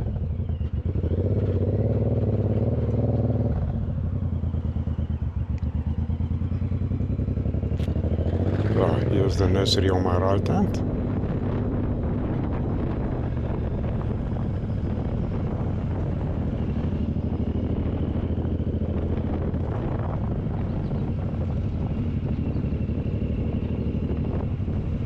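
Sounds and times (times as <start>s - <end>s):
motorcycle engine cruising: 0.0s - 25.0s
wind noise on microphone: 7.7s - 25.0s.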